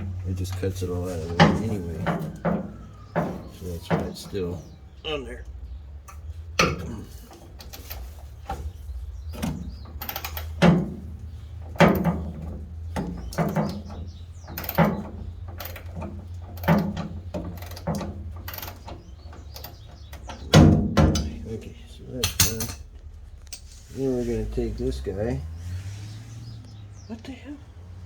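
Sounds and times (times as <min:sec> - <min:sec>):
socket wrench clacking: 0:09.4 - 0:21.3, 0:22.2 - 0:22.8.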